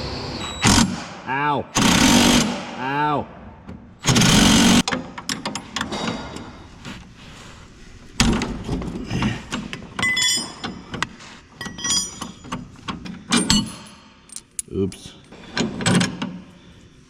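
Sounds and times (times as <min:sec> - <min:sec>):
metal pieces clinking: 0:10.0 - 0:10.8, 0:11.6 - 0:12.4, 0:13.4 - 0:15.3.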